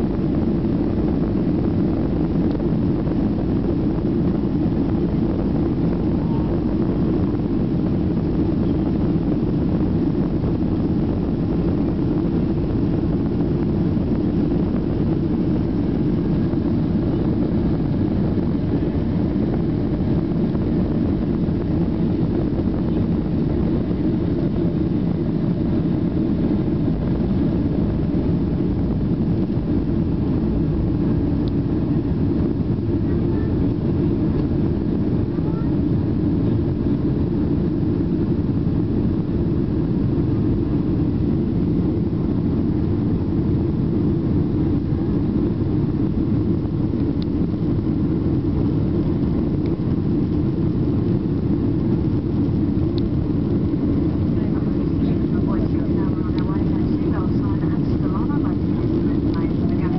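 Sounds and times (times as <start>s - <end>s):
airplane cabin jet engine drone: 0.0s - 59.9s.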